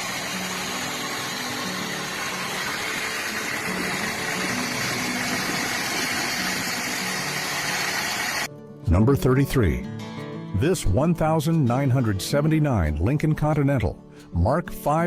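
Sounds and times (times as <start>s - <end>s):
car engine idling: 0.0s - 8.5s.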